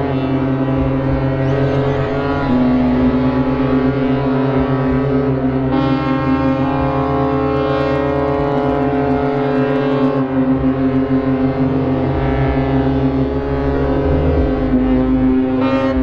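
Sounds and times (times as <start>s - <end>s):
ship horns blasting: 0.0s - 16.0s.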